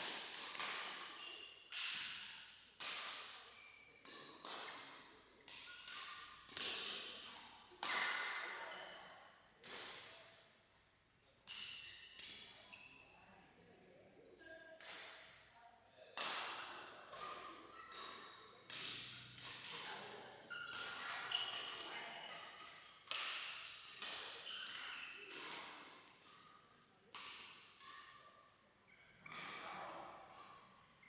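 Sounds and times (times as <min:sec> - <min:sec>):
rackets hitting shuttlecock: 0:16.2 - 0:19.9, 0:20.7 - 0:24.4, 0:25.3 - 0:26.0.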